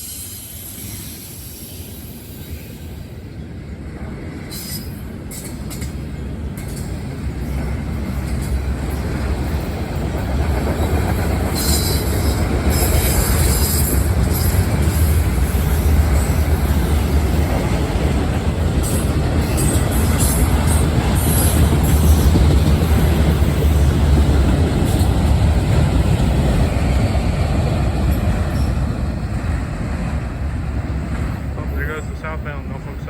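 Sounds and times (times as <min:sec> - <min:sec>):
train wheel squeal: 0:00.0 - 0:03.2, 0:04.2 - 0:09.8, 0:10.6 - 0:17.8, 0:18.8 - 0:24.0, 0:28.1 - 0:29.0
freight train rumbling past: 0:00.0 - 0:33.0.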